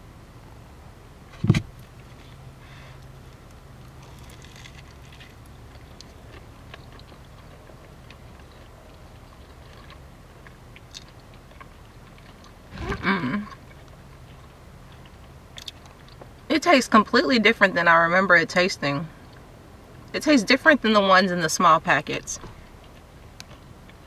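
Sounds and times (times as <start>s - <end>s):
person chewing crunchy food: 3.9s - 16.2s
steady low hum: 11.6s - 15.5s
mouth sounds: 12.7s - 13.6s
short vocal hum: 12.7s - 13.6s.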